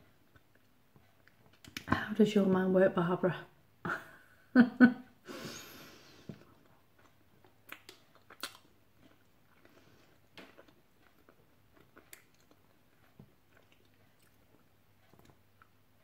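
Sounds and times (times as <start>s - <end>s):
person chewing crunchy biscuit: 6.3s - 16.0s.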